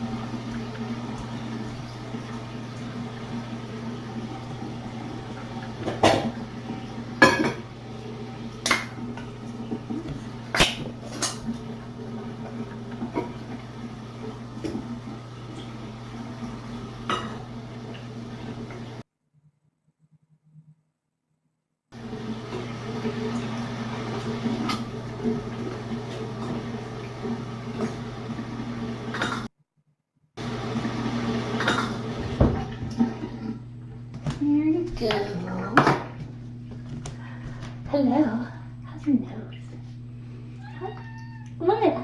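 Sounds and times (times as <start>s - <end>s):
dishes clinking and knocking: 7.2s - 7.6s
steady low hum: 31.6s - 42.0s.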